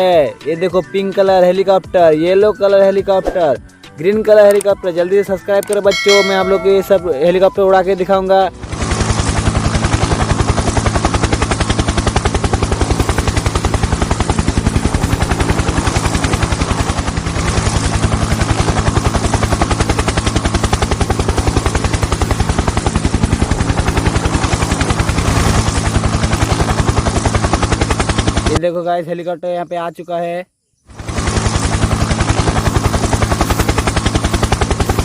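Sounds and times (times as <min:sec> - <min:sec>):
helicopter rotor chopping: 0:05.9 - 0:07.5, 0:08.2 - 0:28.7, 0:30.9 - 0:35.0.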